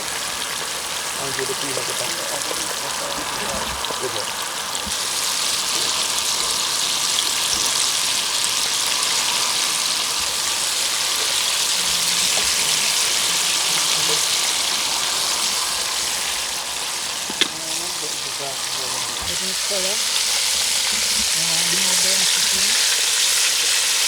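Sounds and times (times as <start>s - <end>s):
chicken sizzling in a pot: 0.0s - 24.0s.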